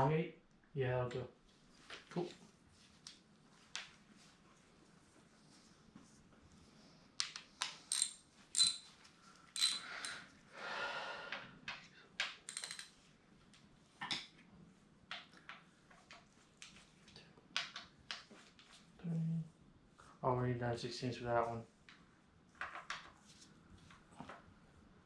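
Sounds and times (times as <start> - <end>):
metal tools clinking: 7.9 - 8.9, 9.6 - 10.2, 12.5 - 12.9.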